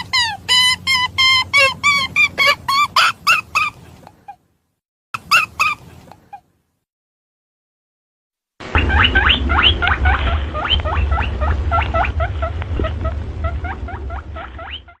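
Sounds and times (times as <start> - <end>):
rabbit squeaking: 0.0 - 4.4, 5.2 - 6.4, 8.8 - 15.0
low rumble: 8.6 - 15.0.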